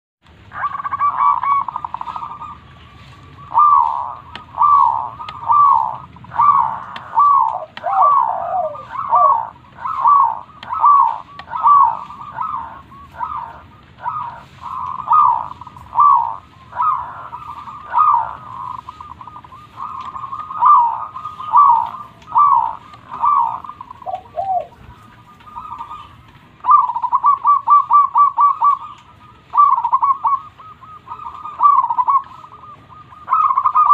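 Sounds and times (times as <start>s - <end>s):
dove cooing: 0.4s - 33.9s.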